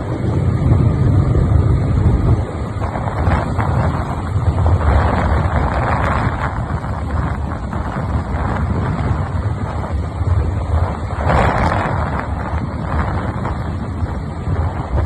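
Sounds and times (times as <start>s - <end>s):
vehicle rumble: 0.0s - 15.0s
wind buffeting microphone: 0.0s - 15.0s.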